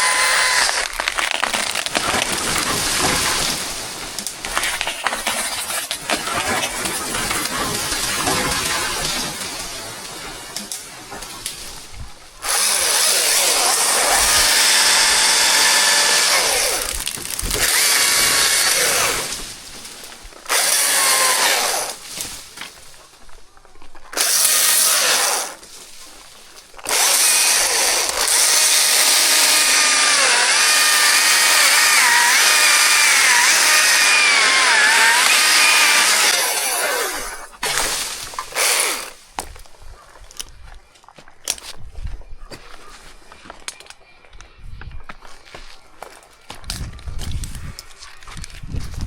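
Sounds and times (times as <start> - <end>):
chainsaw cutting wood: 0.0 - 11.4, 12.4 - 19.7, 20.5 - 22.1, 24.1 - 25.6, 26.8 - 39.2.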